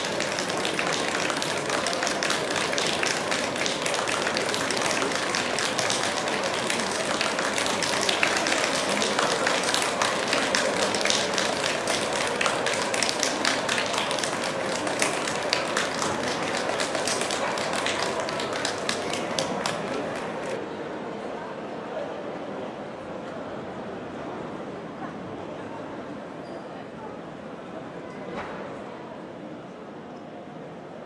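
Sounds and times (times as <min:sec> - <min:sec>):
audience applause: 0:00.0 - 0:20.6.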